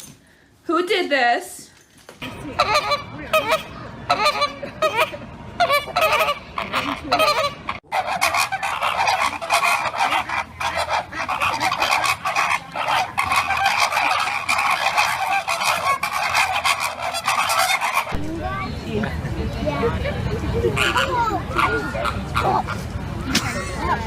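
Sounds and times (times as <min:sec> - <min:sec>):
birds calling loudly: 0:02.2 - 0:18.8.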